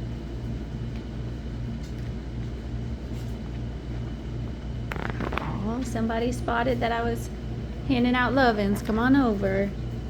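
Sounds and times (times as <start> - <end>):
steady low rumble: 4.5 - 8.5.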